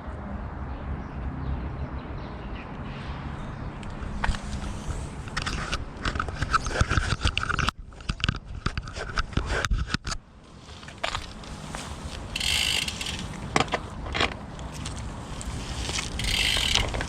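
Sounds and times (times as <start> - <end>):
bike tyres crunching and rattling: 4.0 - 17.0.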